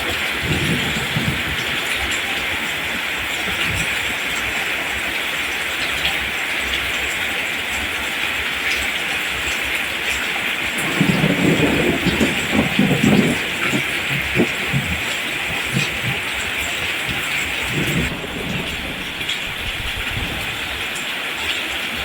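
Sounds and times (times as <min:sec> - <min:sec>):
low thunder rumble: 0:00.0 - 0:04.6, 0:10.5 - 0:21.2
steady rain: 0:00.0 - 0:22.0.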